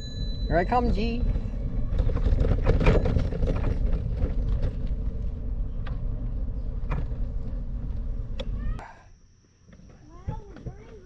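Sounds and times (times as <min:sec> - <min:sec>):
bicycle tyres rolling on pavement: 0:01.0 - 0:08.8.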